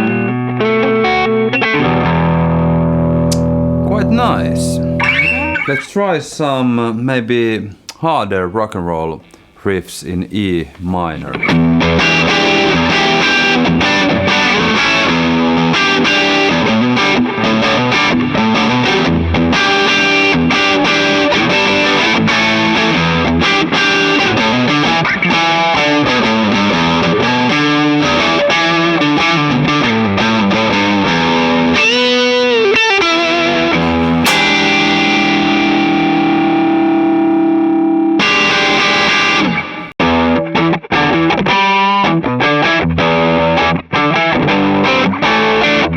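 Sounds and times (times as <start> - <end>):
distorted electric guitar riffs: 0.0 - 6.0, 33.7 - 40.4.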